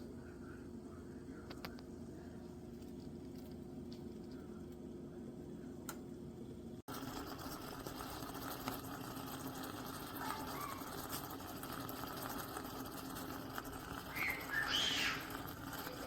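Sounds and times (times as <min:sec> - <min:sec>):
water boiling hiss: 0:06.8 - 0:16.0.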